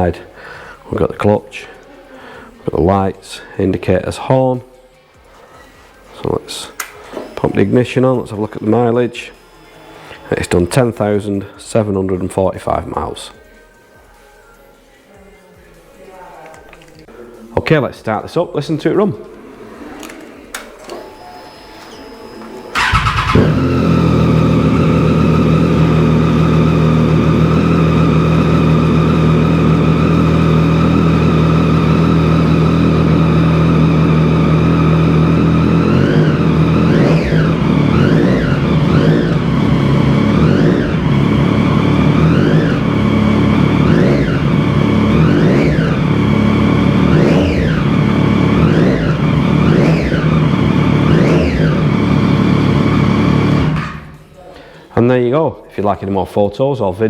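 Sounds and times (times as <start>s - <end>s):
motorcycle engine idling: 22.7s - 54.2s
motorcycle engine revving: 22.7s - 54.2s.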